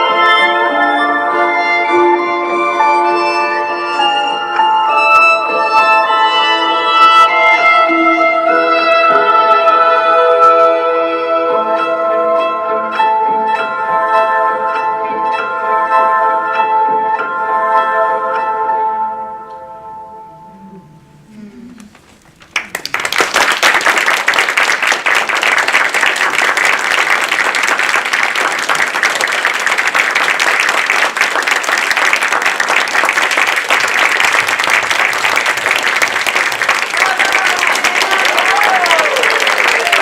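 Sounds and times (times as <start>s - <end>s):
music: 0.0s - 21.4s, 29.9s - 40.0s
audience applause: 22.4s - 40.0s.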